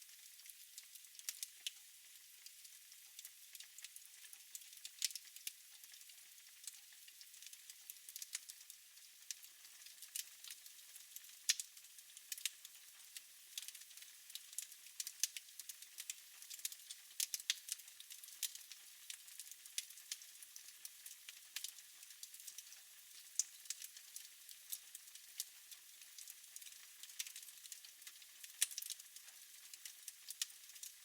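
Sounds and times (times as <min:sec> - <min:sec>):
fire crackling and popping: 0:08.1 - 0:08.5, 0:11.2 - 0:12.6, 0:13.6 - 0:20.4, 0:21.0 - 0:22.7, 0:23.4 - 0:30.9.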